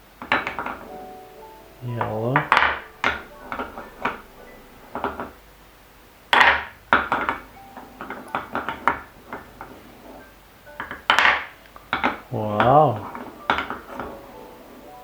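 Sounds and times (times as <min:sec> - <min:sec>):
marbles clicking on wood: 0:06.3 - 0:09.7, 0:10.8 - 0:14.2.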